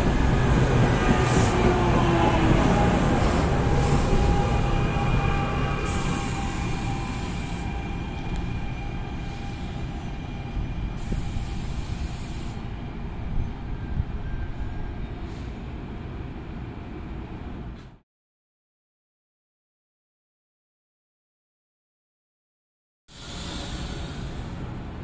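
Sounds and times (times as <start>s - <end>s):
train wheels rumbling on rail: 0.0s - 18.0s, 23.1s - 25.0s.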